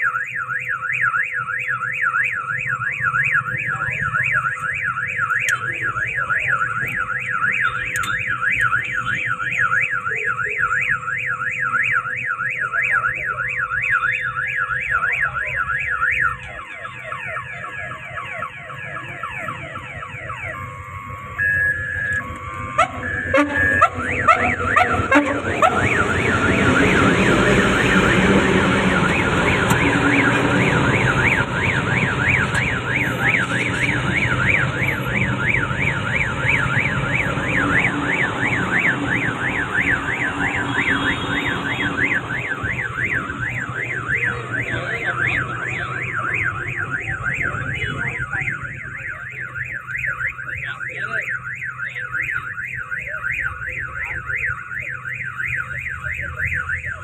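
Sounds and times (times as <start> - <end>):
electronic alarm warbling: 0.0 - 57.0
passing train rumble: 22.1 - 48.9.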